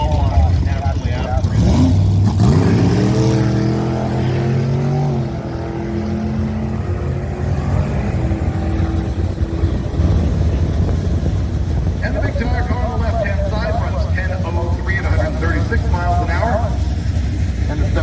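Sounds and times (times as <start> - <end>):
constant low rumble: 0.0 - 2.4, 6.4 - 18.0
car engine accelerating: 0.0 - 18.0.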